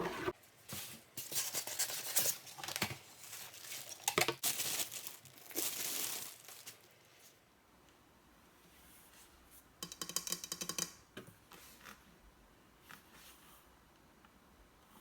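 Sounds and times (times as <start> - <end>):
packaging crinkling and rustling: 1.2 - 7.0
packaging tearing: 3.4 - 6.8.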